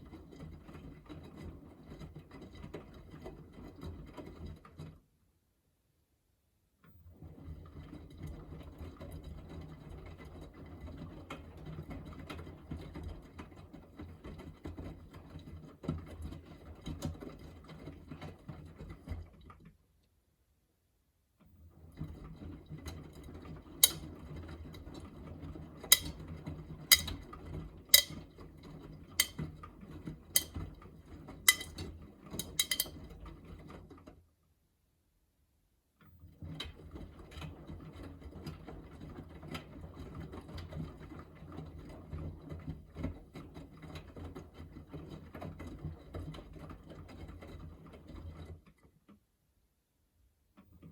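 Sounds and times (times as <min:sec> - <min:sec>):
sharp clicks from drum: 0:26.9 - 0:27.1, 0:28.0 - 0:28.2, 0:32.4 - 0:32.9.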